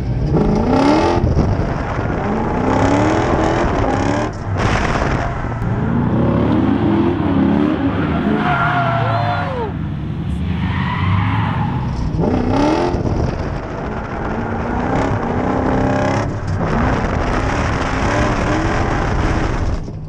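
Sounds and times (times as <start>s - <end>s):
tyres skidding and squealing: 0.2s - 19.5s
engine revving hard: 0.4s - 13.2s.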